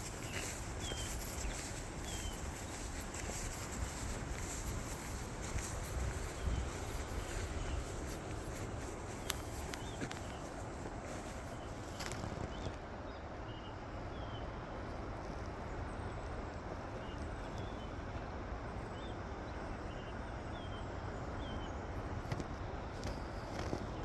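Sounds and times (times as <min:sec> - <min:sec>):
small bird chirping: 0:00.0 - 0:12.7.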